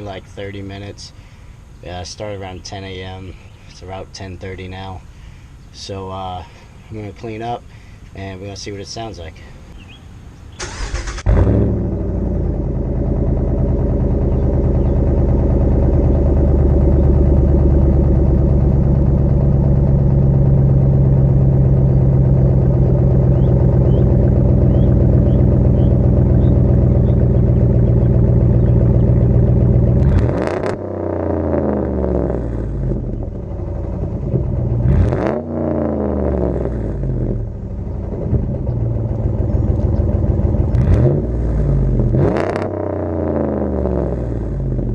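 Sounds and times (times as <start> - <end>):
truck engine idling and revving: 9.8 - 44.9.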